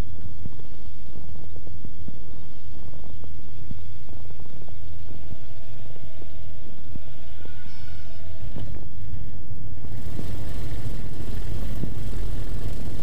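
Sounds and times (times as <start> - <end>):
aircraft engine and propeller droning: 6.8 - 13.0.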